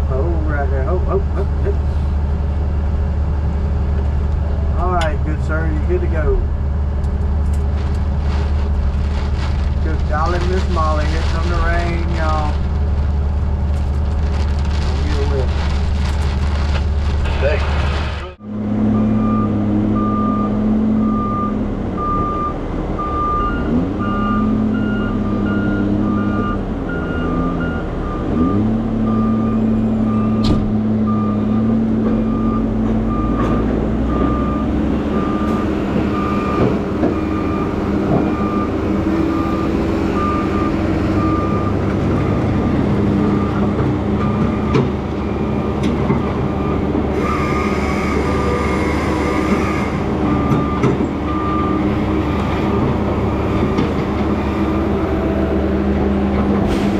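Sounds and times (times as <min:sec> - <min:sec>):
heavy diesel machinery running: 0:00.0 - 0:56.9
back-up alarm beeping: 0:18.9 - 0:41.8.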